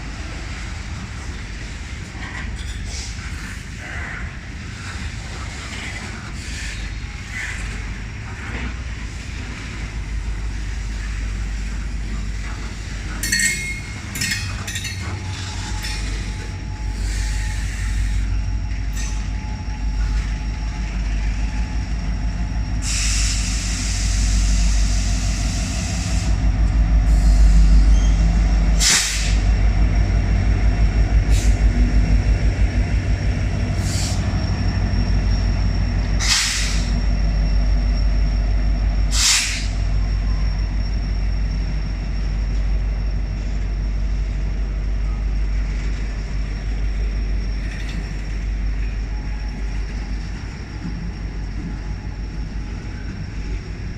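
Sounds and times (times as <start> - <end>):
freight train rumbling: 0.0 - 53.9
air brakes hissing: 15.4 - 19.3, 22.8 - 26.4, 27.1 - 29.5, 31.3 - 31.7, 33.8 - 34.3, 36.2 - 37.0, 39.1 - 40.0.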